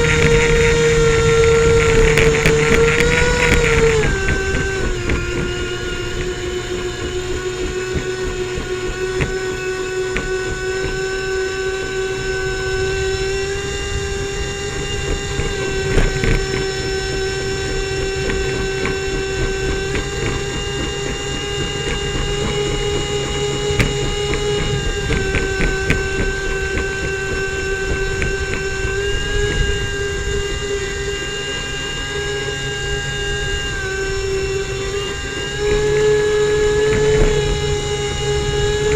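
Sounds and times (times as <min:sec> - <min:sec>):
airboat engine and propeller drone: 0:00.0 - 0:38.9.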